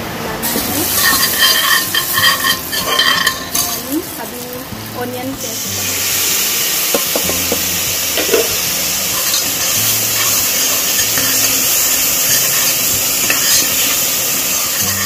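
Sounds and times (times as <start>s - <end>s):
paste sizzling in hot oil: 0.4s - 15.0s
metal spoon clicking on pan: 9.2s - 15.0s.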